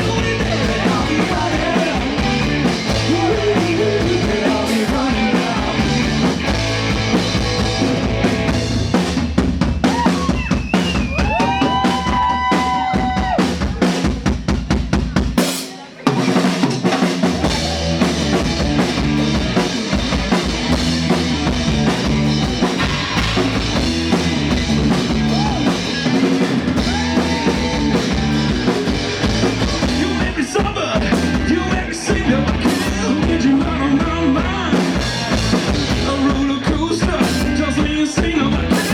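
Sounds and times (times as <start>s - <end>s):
rock band playing: 0.0s - 38.9s.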